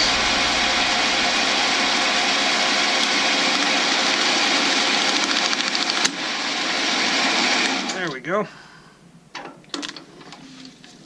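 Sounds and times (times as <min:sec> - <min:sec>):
metal lathe cutting: 0:00.0 - 0:06.8.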